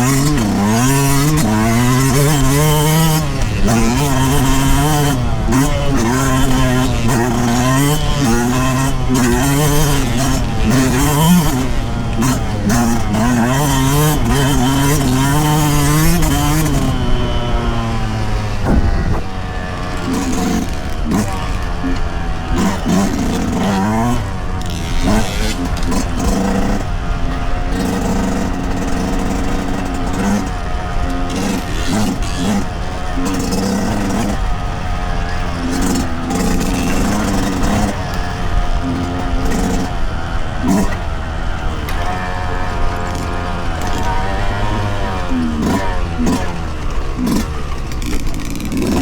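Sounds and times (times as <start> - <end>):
two-stroke engine revving: 0.0 - 49.0.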